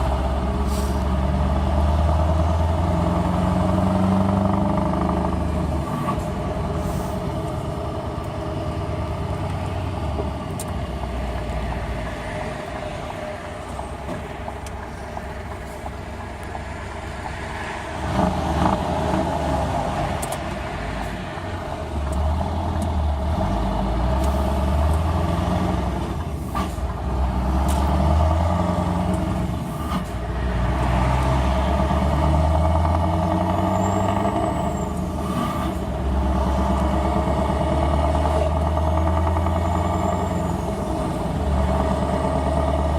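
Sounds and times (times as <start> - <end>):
truck engine deep rumble: 0.0 - 42.9.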